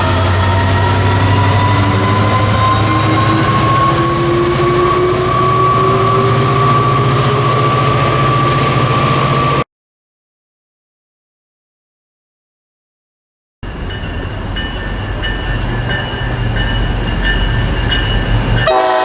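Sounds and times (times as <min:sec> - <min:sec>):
train running close by: 0:00.0 - 0:09.6, 0:13.6 - 0:19.0.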